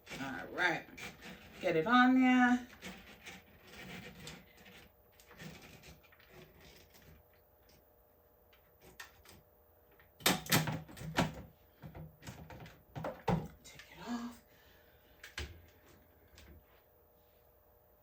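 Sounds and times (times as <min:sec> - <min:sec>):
sharp clicks and scrapes: 0:02.7 - 0:07.8.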